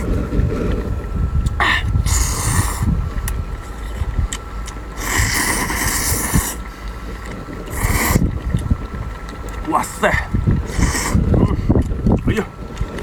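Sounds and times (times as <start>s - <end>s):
low steady rumble: 0.0s - 13.0s
noodles being slurped: 2.0s - 3.0s, 3.6s - 8.7s, 9.5s - 11.8s.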